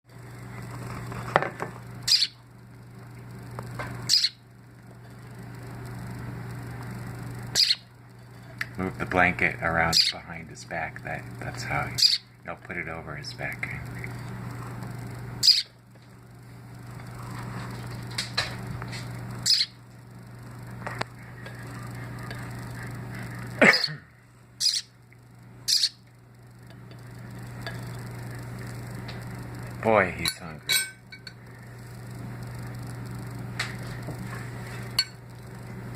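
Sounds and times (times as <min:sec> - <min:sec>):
steady low hum: 0:00.1 - 0:35.9
baby bird chirping: 0:02.0 - 0:02.4, 0:04.1 - 0:04.4, 0:07.6 - 0:07.9, 0:09.9 - 0:10.2, 0:12.0 - 0:12.3, 0:15.4 - 0:15.7, 0:19.4 - 0:19.8, 0:24.6 - 0:25.0, 0:25.6 - 0:26.0.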